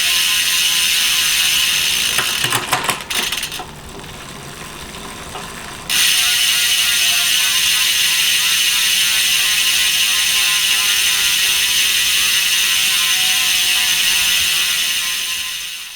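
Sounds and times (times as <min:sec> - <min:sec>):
freehub ratchet buzzing: 0:00.0 - 0:15.9.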